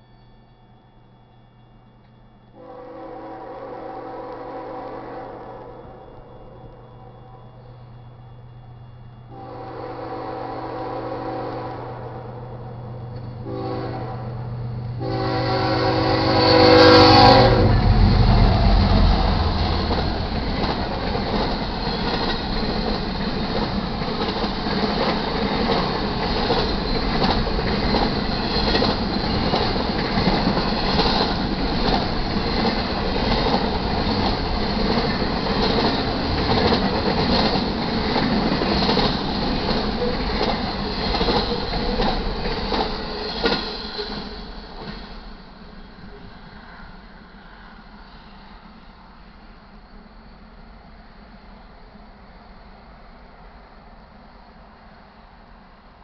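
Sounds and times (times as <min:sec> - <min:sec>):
diesel locomotives passing: 0:00.0 - 0:56.0
locomotive horn blasts: 0:02.6 - 0:05.8, 0:09.3 - 0:12.4, 0:13.4 - 0:14.4, 0:15.0 - 0:17.9
rail car wheels clicking: 0:12.3 - 0:13.7, 0:16.4 - 0:48.8.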